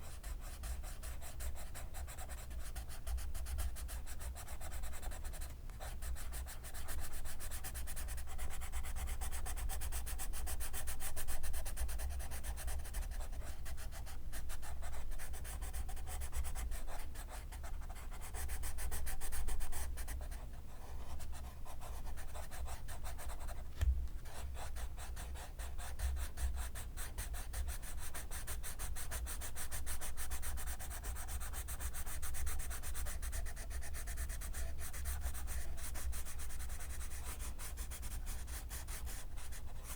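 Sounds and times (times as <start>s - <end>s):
pencil scratching on paper: 0.0s - 39.9s
soft knock: 23.8s - 24.2s.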